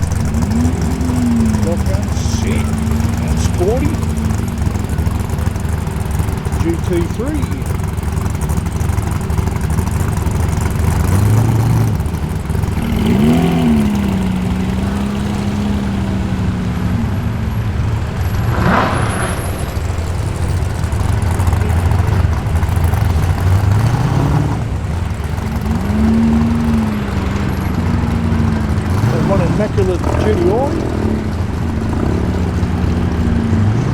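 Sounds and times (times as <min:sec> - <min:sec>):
engine throttle blip: 0:00.0 - 0:23.6
car engines running: 0:00.0 - 0:33.9.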